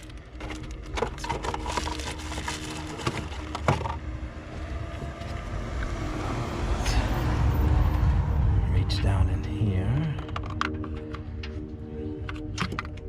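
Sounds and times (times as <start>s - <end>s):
parts clicking and knocking: 0.0s - 4.1s, 10.0s - 13.0s.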